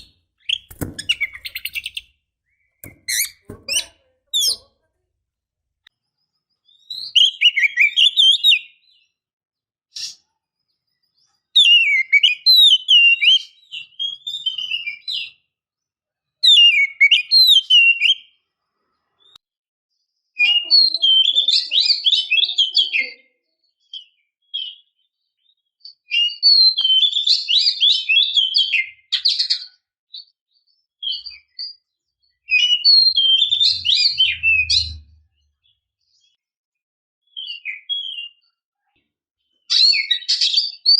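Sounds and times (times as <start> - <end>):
bird warbling song: 0.0 - 4.7, 31.0 - 36.4.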